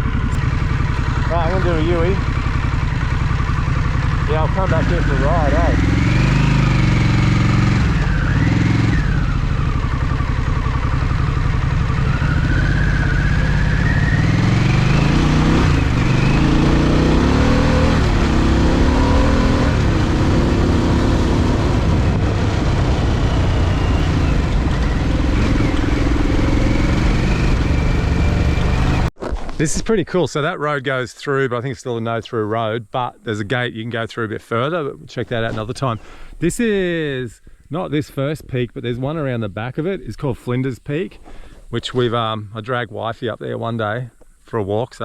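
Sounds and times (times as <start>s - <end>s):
motorcycle engine revving: 0.0s - 29.1s.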